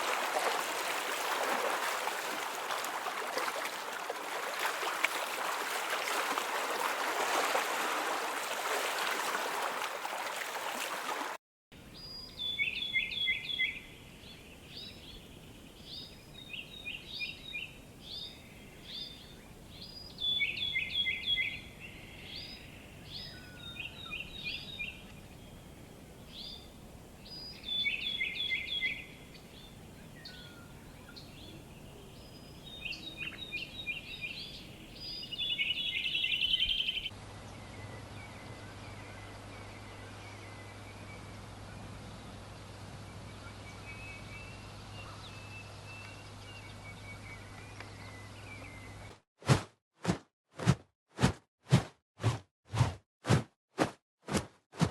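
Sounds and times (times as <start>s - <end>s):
rushing water: 0.0s - 11.4s
songbird singing: 11.8s - 49.2s.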